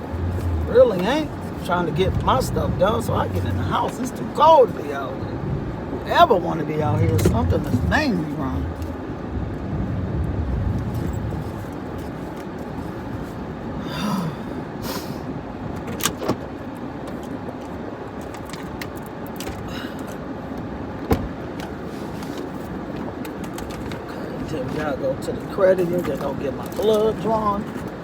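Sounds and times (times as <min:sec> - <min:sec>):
truck engine and road noise: 0:00.0 - 0:28.0.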